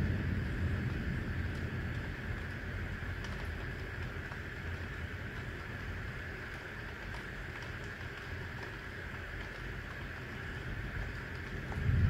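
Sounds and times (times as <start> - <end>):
thunder rolling: 0.0 - 4.2, 11.4 - 12.0
low background rumble: 0.0 - 12.0
steady rain: 0.0 - 12.0.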